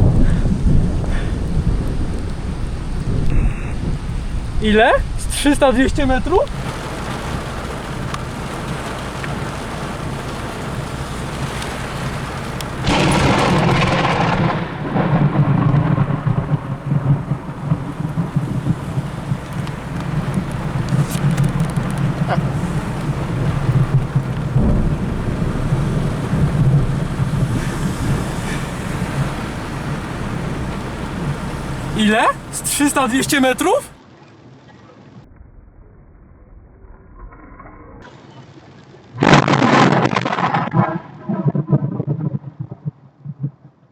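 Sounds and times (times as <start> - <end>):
thunder rumbling: 0.0 - 34.0
steady rain: 0.0 - 35.1, 38.0 - 40.9.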